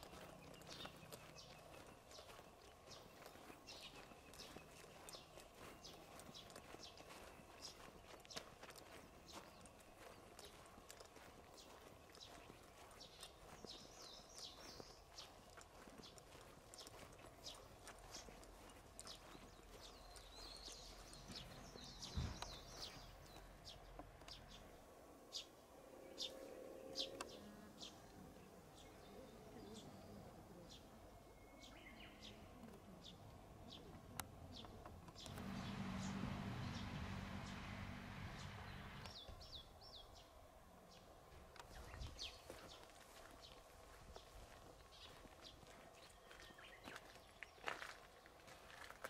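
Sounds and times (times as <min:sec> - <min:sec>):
small birds chirping: 0:00.0 - 0:49.0
low steady hum: 0:17.4 - 0:41.5
low thump: 0:22.0 - 0:22.6.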